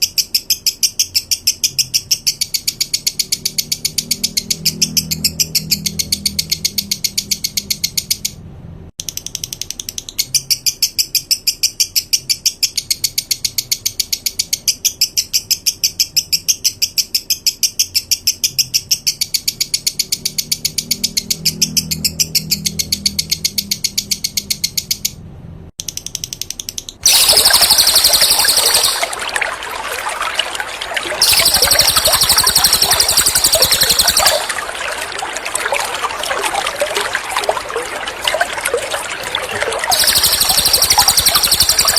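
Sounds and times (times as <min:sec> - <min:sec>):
rushing water: 0:27.0 - 0:41.9.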